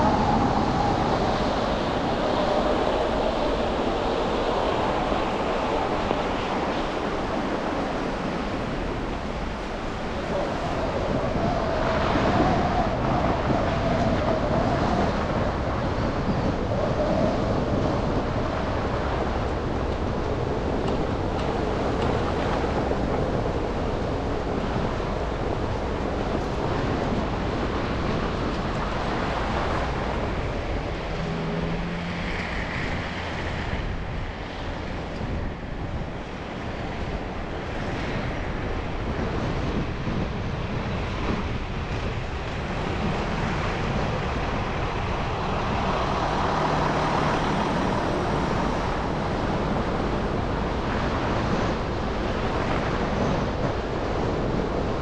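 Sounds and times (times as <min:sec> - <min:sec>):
engine hum: 0:15.6 - 0:37.7
passing traffic: 0:17.2 - 0:55.0.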